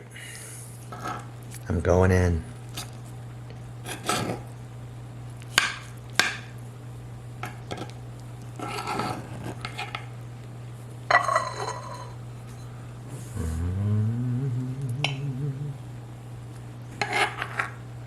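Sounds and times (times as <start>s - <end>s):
steady low hum: 12.3s - 16.9s.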